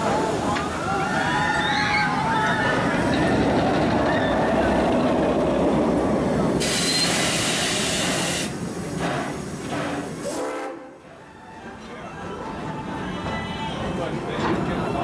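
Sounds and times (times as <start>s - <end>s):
steam locomotive passing: 0.0s - 14.9s
steam hissing: 6.0s - 10.8s.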